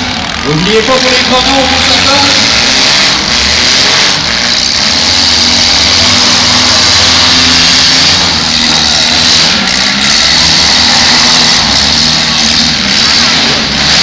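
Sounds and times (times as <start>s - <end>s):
car engines revving: 0.0s - 14.0s.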